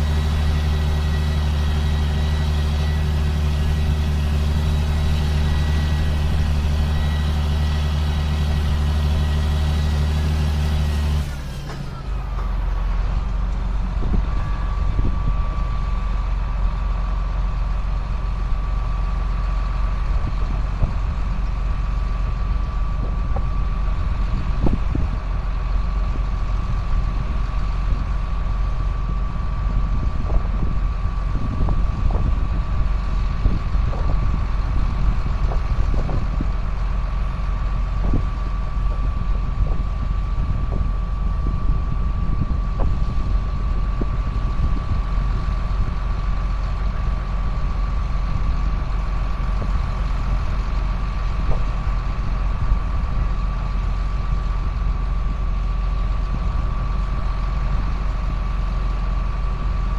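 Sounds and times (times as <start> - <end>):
sprayer engine running: 0.0 - 10.5.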